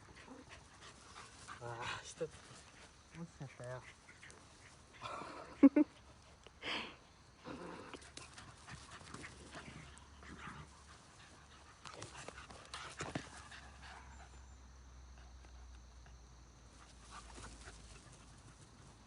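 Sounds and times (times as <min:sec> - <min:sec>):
dog panting: 0:00.0 - 0:06.5, 0:07.9 - 0:14.4, 0:15.1 - 0:18.7
faint clicks and scuffs: 0:07.9 - 0:14.0.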